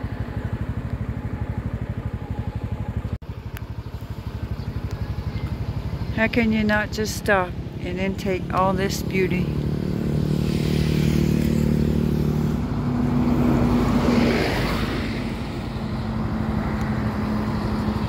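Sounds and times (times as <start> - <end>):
motorcycle engine running: 0.0 - 18.0
road noise: 0.0 - 18.0
rushing wind: 9.4 - 18.0.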